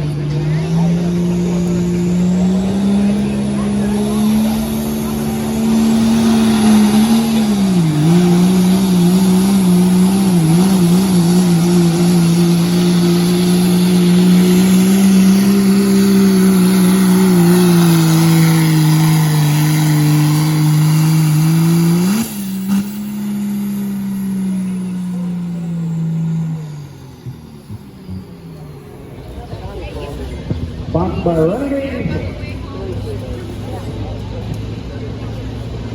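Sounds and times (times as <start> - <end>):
diesel engine under full load: 0.0 - 35.9.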